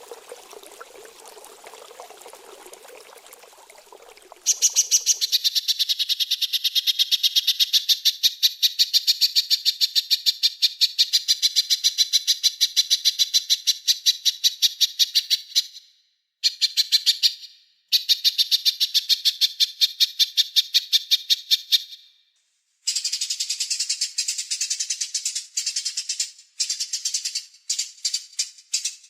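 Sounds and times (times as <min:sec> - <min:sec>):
songbird rattling trill: 0:04.5 - 0:05.4.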